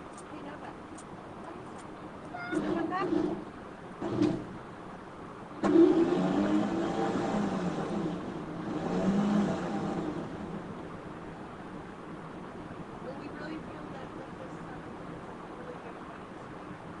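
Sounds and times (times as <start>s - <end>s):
engine starting and revving: 2.5s - 4.6s, 5.6s - 10.7s.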